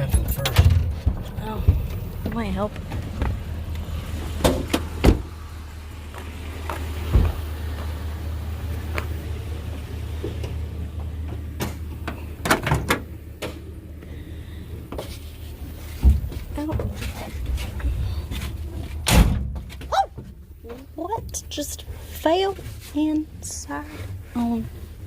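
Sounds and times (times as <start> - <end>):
knocks and clunks of metal doors: 0.0 - 3.7, 4.3 - 5.4, 7.0 - 7.5, 11.0 - 13.7, 19.0 - 20.4
low engine hum: 0.0 - 25.0.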